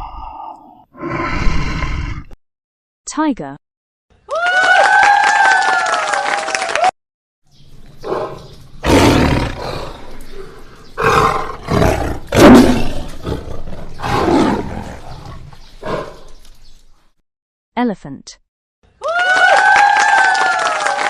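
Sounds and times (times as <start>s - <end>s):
tiger roaring and growling: 0.0s - 2.4s, 8.0s - 16.4s.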